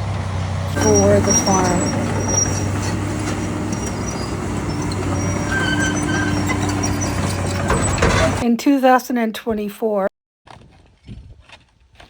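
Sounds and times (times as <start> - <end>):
heavy vehicle engine running: 0.0 - 8.4.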